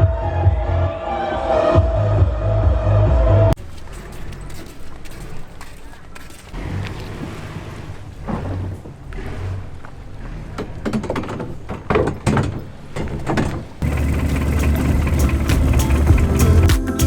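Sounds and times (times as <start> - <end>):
boat engine running: 6.4 - 17.0.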